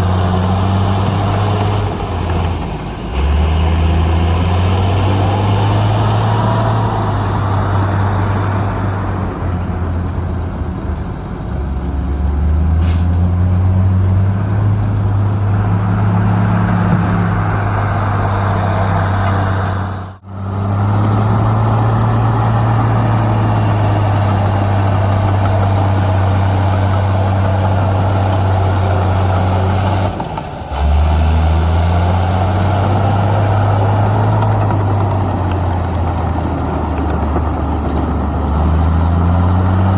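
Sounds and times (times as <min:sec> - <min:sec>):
heavy machinery diesel engine running: 0:00.0 - 0:39.9.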